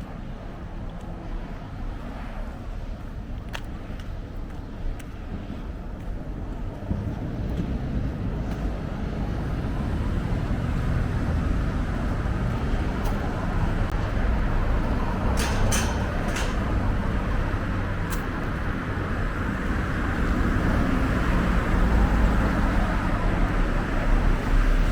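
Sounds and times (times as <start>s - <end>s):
passing vehicles rushing: 5.4s - 24.9s.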